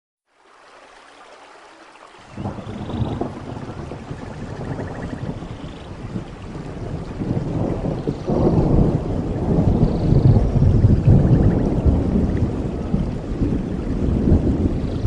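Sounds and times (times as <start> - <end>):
waterfall rushing water: 0.4 - 8.8.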